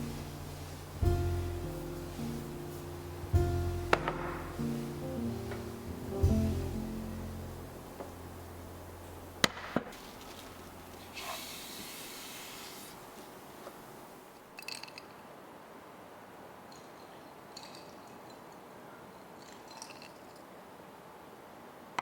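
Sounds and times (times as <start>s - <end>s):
soft hiss: 0.0s - 15.4s.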